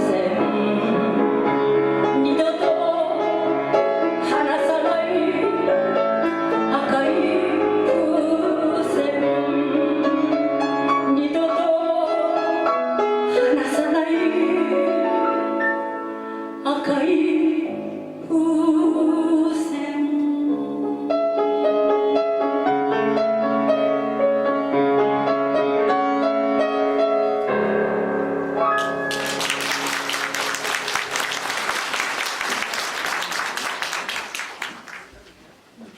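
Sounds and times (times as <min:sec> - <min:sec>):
woman singing with vibrato: 0:00.0 - 0:01.4, 0:02.2 - 0:03.4, 0:04.2 - 0:10.4, 0:11.1 - 0:12.5, 0:13.3 - 0:15.4, 0:16.6 - 0:21.1
instrumental accompaniment: 0:21.1 - 0:32.7
audience applause: 0:28.8 - 0:35.3.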